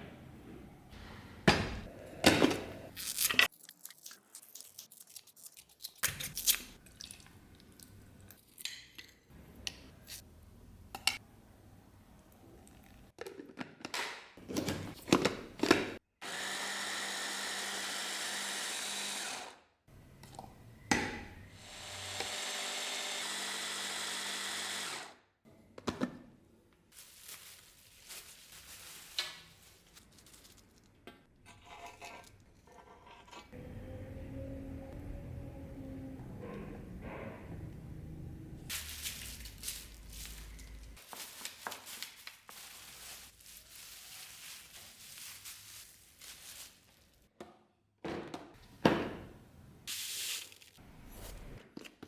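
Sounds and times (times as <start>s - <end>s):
small power tool running: 16.2s - 19.6s, 21.6s - 25.2s.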